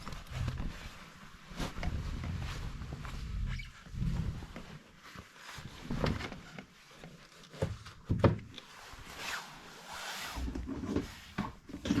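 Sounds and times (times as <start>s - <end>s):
rustling: 0.0s - 8.0s.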